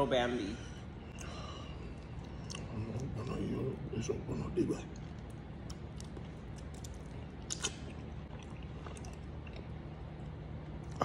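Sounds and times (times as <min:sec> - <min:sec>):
person chewing: 0:01.0 - 0:03.4, 0:04.9 - 0:11.0.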